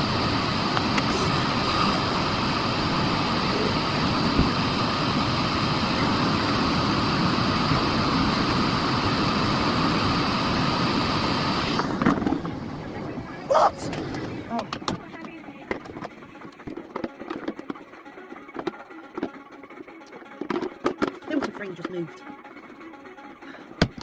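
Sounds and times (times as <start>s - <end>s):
vacuum cleaner whining: 0.0s - 15.3s.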